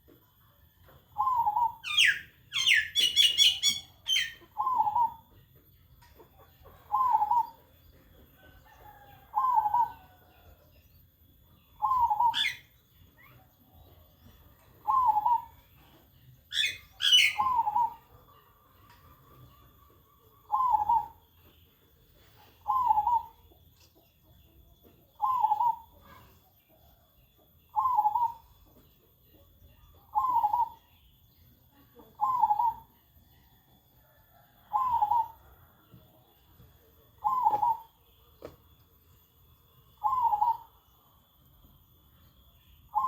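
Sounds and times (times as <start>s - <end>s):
dove cooing: 1.2s - 5.3s, 6.9s - 7.7s, 8.8s - 10.2s, 11.8s - 12.6s, 14.8s - 16.0s, 16.6s - 18.1s, 20.5s - 21.2s, 22.5s - 23.4s, 25.2s - 26.3s, 27.8s - 28.5s, 30.1s - 30.8s, 32.2s - 32.9s, 34.2s - 35.8s, 37.2s - 38.0s, 40.0s - 40.8s.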